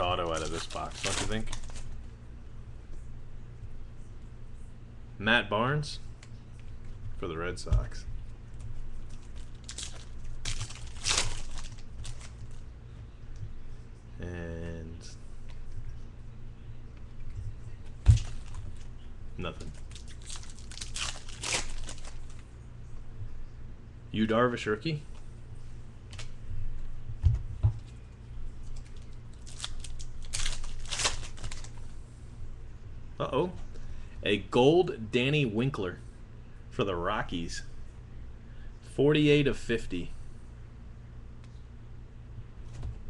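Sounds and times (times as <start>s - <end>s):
cards rustling and clicking: 0.0s - 2.0s, 8.6s - 12.6s, 17.8s - 22.5s, 26.1s - 26.4s, 28.6s - 31.9s
foil wrapper crinkling: 0.0s - 2.0s, 9.0s - 12.6s, 18.0s - 22.5s, 28.6s - 31.9s
steady low hum: 0.0s - 43.0s.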